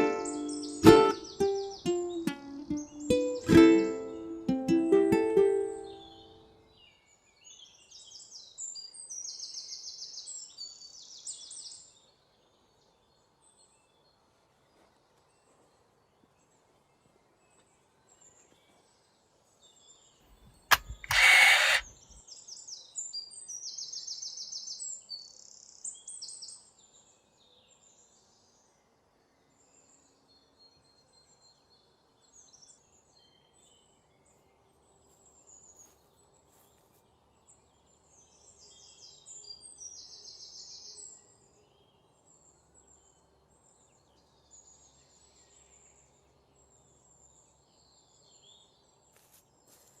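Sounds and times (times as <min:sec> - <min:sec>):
sharp click: 0:20.4 - 0:22.0.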